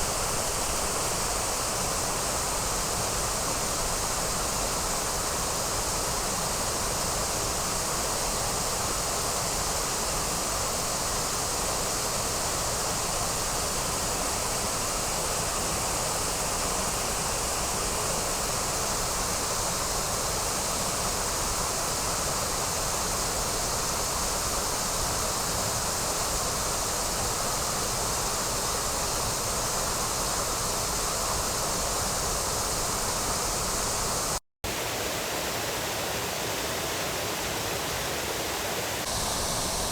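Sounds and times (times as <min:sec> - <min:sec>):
waterfall rushing: 0:27.9 - 0:39.9.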